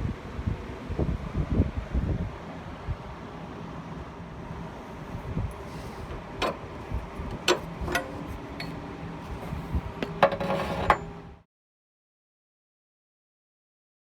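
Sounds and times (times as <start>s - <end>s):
hand tools clinking against metal: 7.3s - 8.8s.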